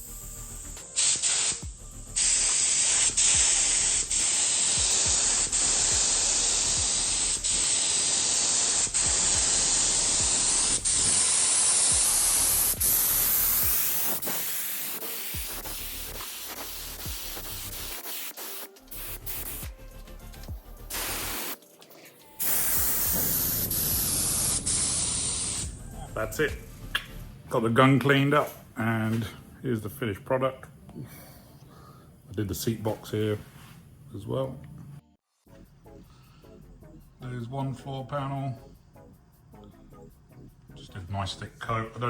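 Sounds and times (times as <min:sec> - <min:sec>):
paint spray gun hissing: 0:00.0 - 0:21.6, 0:22.3 - 0:27.3.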